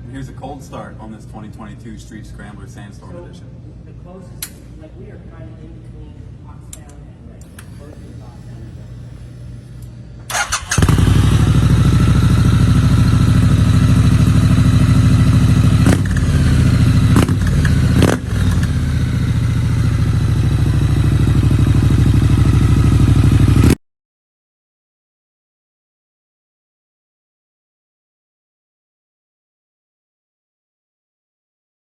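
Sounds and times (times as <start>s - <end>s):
motorcycle starter cranking: 7.5s - 13.7s, 15.9s - 20.0s
engine revving bursts: 7.5s - 23.8s
motorcycle engine idling: 7.5s - 23.8s.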